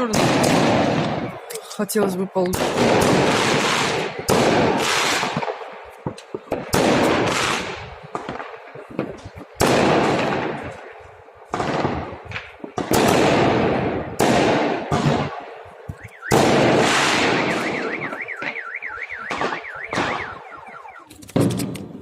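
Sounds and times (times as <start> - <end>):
fireworks bursting with echo: 0.0 - 22.0
sharp crackles: 2.4 - 22.0
car alarm warbling: 17.4 - 21.1.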